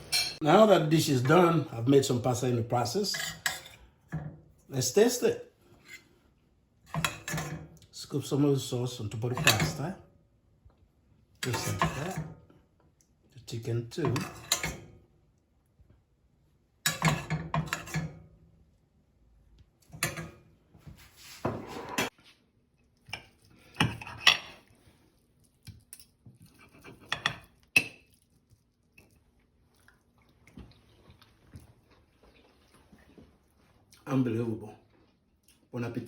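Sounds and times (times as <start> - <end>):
metal utensils scraping a plate: 11.4 - 12.3, 21.2 - 22.1.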